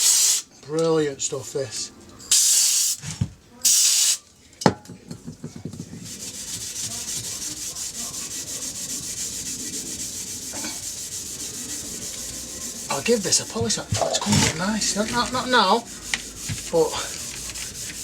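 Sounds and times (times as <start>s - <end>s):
aerosol spray hiss: 0.0s - 0.5s, 2.3s - 3.0s, 3.6s - 4.2s
cloth rubbing metal part: 6.0s - 18.0s.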